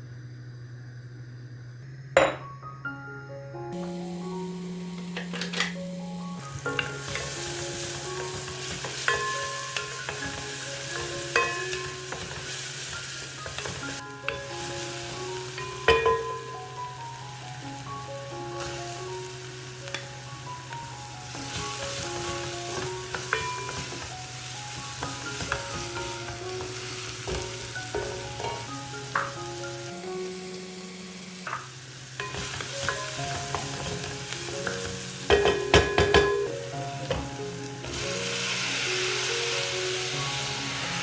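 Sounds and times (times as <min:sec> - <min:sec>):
soft background music: 0:01.8 - 0:41.0
food sizzling in a pan: 0:03.7 - 0:41.0
utensil clinking against pan: 0:08.4 - 0:12.4, 0:15.8 - 0:16.5, 0:22.7 - 0:24.1, 0:34.6 - 0:36.5.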